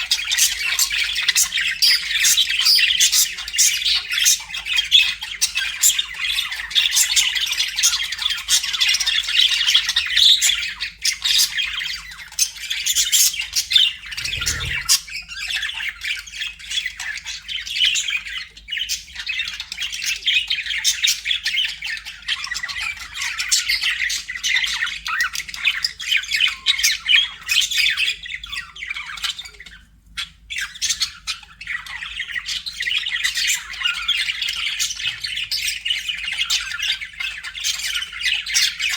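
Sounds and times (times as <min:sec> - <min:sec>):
budgerigars chattering: 0:14.2 - 0:15.0.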